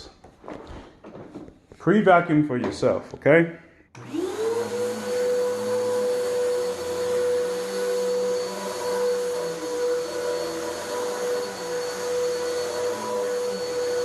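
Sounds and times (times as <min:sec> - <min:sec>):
vacuum cleaner running on carpet: 0:04.0 - 0:14.0.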